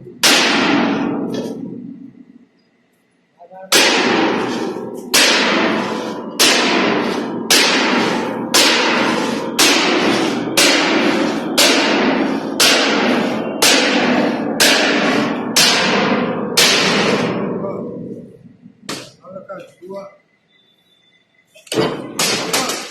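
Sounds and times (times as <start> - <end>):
heavy hammer ringing on steel plate: 3.7 - 17.6.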